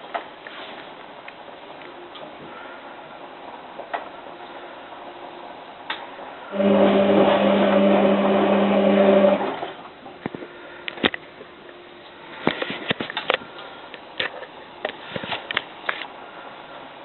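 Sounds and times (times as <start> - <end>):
washing machine valve buzzing hum: 6.4 - 10.0
rushing water: 6.5 - 10.0.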